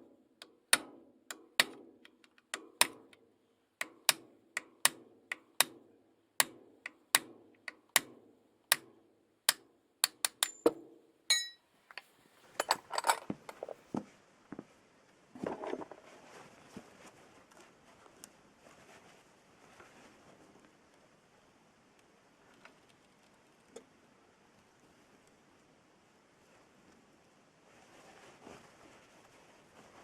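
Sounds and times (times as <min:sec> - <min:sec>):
hammer tapping on metal: 0:00.4 - 0:03.2, 0:06.4 - 0:08.1, 0:09.5 - 0:11.6
metal ringing: 0:10.4 - 0:11.6
metal parts clinking: 0:11.3 - 0:11.6, 0:12.6 - 0:13.7.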